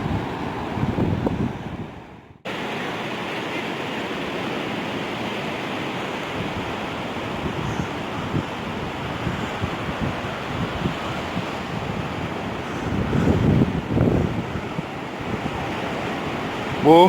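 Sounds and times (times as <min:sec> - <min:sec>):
wind on microphone: 0:00.0 - 0:02.4, 0:06.4 - 0:16.9
ocean surf washing: 0:00.0 - 0:17.0.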